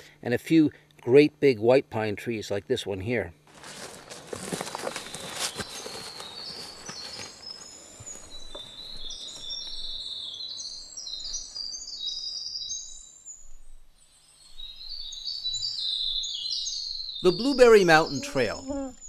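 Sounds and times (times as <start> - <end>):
footsteps on forest floor: 3.5 - 11.7
songbirds whistling: 3.9 - 19.0.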